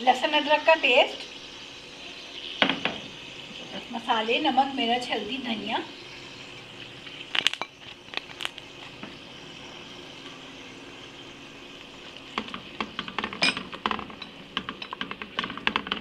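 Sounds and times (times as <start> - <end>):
food sizzling in hot oil: 0.0 - 16.0
spoon knocking and scraping pot: 12.3 - 16.0.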